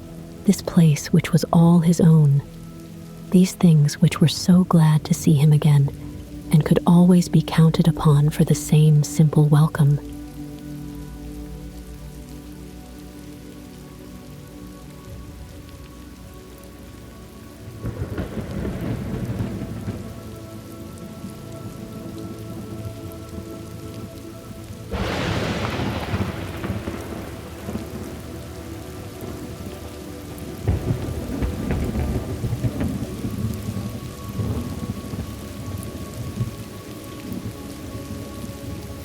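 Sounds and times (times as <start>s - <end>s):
steady rain: 0.0s - 39.0s
rolling thunder: 17.8s - 20.4s, 24.9s - 36.6s.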